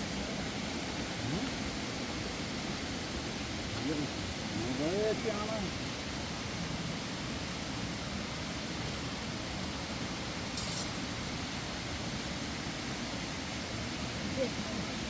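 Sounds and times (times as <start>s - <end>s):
high clink: 10.6s - 11.1s.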